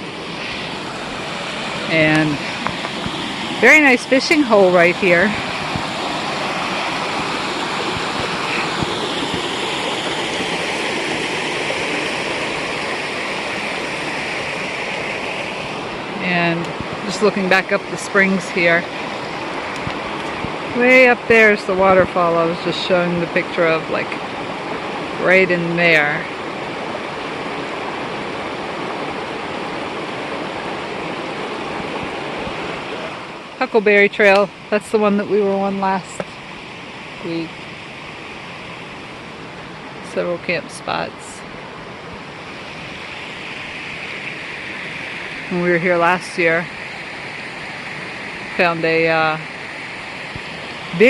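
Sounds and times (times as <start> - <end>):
creek water rushing: 0.0 - 51.0.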